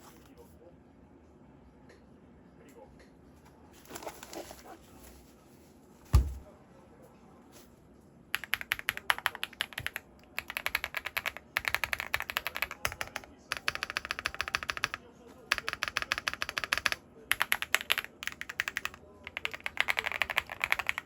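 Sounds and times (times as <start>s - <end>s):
heavy thump: 6.1s - 6.4s.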